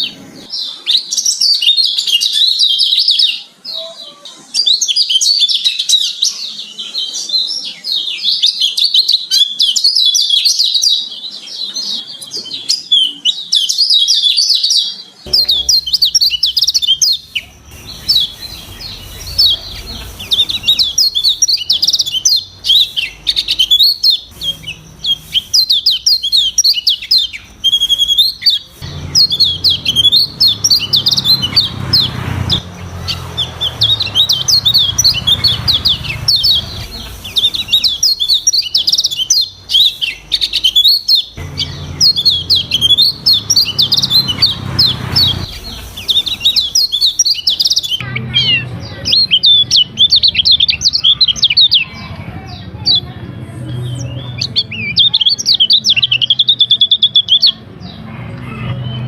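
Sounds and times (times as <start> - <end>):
bird twittering song: 4.5 - 53.0, 53.7 - 59.0
low hum: 15.3 - 21.8.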